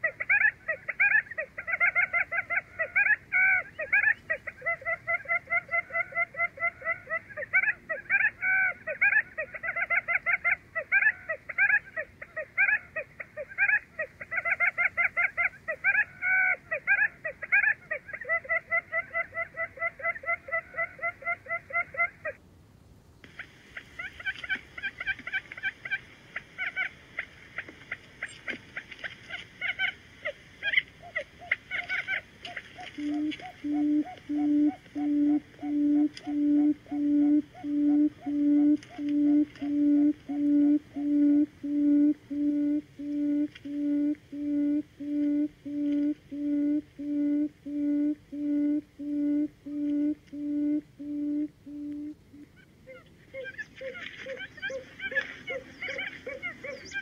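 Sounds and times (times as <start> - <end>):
quail chirping: 0.0 - 22.1, 23.4 - 57.0
buttonquail low hooting: 29.6 - 57.0.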